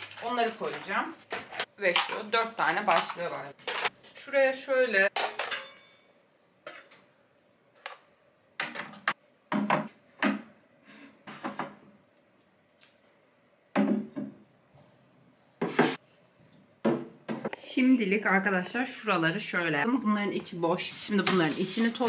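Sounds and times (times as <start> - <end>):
objects knocking on a shelf: 8.6 - 10.5, 11.2 - 11.8, 16.8 - 17.5.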